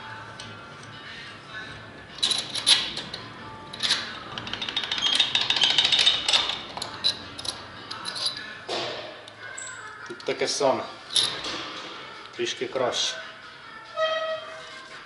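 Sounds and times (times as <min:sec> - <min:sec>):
faint background music: 0:00.0 - 0:15.0
ratchet wrench clicking: 0:03.7 - 0:08.4.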